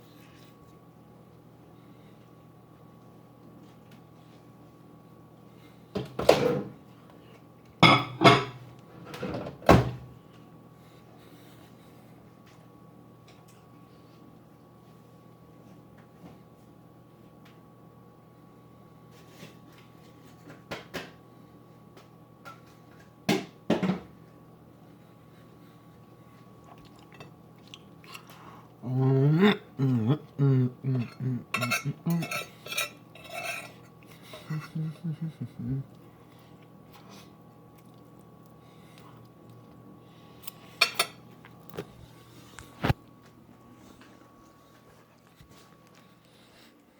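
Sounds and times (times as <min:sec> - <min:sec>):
faint steady hum: 0:00.0 - 0:46.9
tableware clinking: 0:07.8 - 0:08.6, 0:31.0 - 0:33.8.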